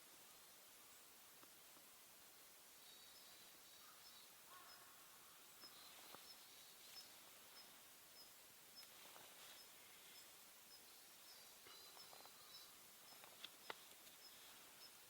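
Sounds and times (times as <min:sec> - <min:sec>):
soft hiss: 0:00.0 - 0:15.0
high chirps of small wildlife: 0:02.8 - 0:15.0
faint animal calls: 0:02.9 - 0:08.3.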